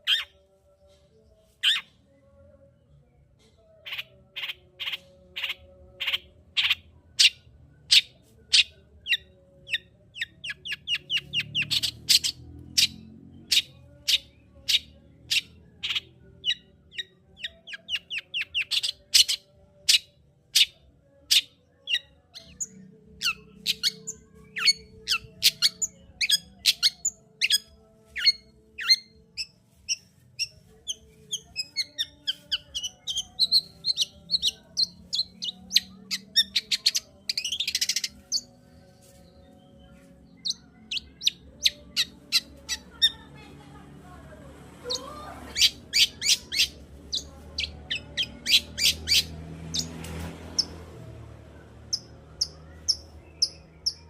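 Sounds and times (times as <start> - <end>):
shrike chirping and trilling: 3.9 - 38.5, 44.8 - 49.9, 51.8 - 54.0.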